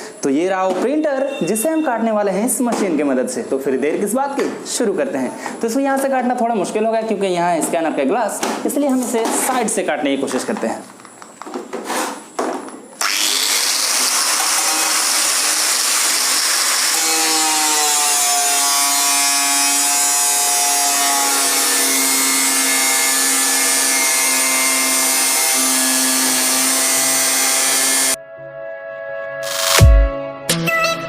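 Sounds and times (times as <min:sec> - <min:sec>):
angle grinder cutting: 0:13.0 - 0:28.2.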